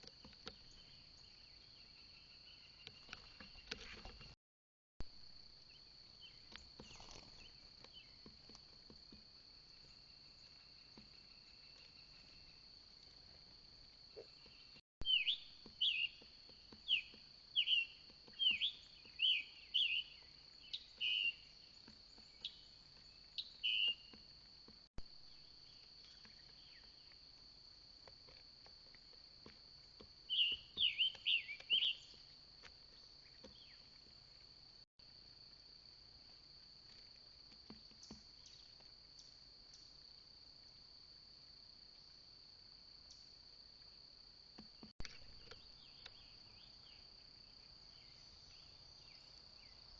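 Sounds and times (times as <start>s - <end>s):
insects droning: 0.0s - 4.4s, 5.0s - 49.9s
songbird calling: 0.0s - 4.4s, 5.6s - 13.1s, 14.1s - 24.5s, 25.3s - 27.2s, 29.8s - 34.5s, 37.8s - 40.0s, 44.6s - 49.9s.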